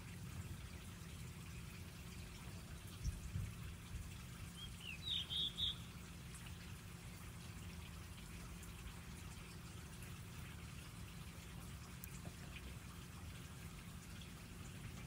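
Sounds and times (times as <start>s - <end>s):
bird chirping: 4.6s - 5.9s.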